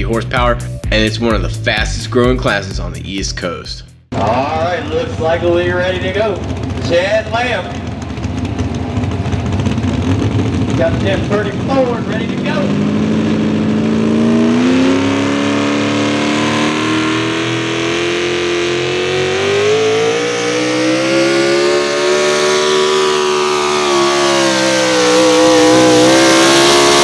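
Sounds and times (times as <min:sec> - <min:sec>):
truck engine revving under load: 0:07.7 - 0:27.0.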